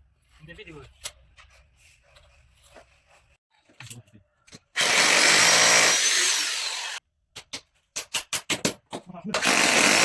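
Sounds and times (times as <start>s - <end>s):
power drill running: 4.8s - 7.0s, 9.4s - 10.0s.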